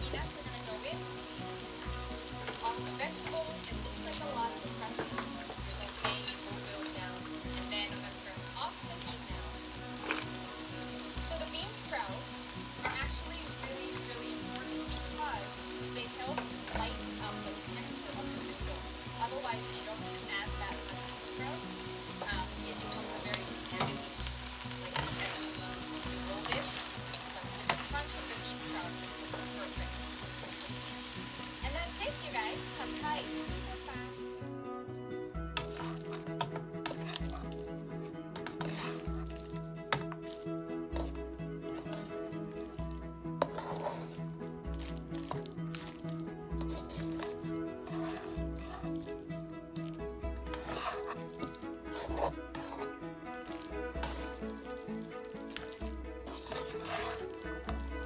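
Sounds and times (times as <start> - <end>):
noodles sizzling in a wok: 0.0 - 34.5, 35.5 - 58.0
spatula scraping a pan: 9.9 - 10.7, 11.4 - 33.9, 35.6 - 49.2, 49.8 - 58.0.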